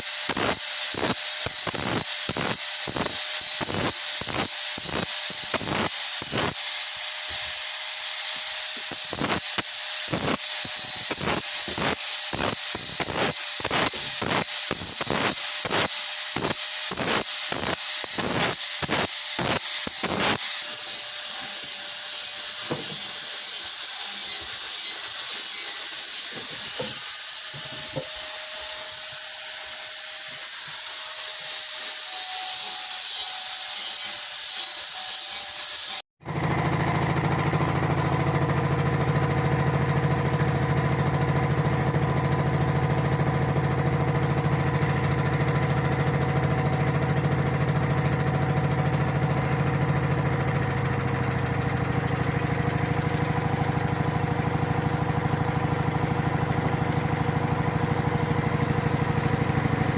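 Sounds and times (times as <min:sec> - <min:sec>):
low drone of a motor: 0:00.0 - 0:30.4, 0:36.2 - 0:59.9
power tool hissing rasp: 0:00.0 - 0:36.0.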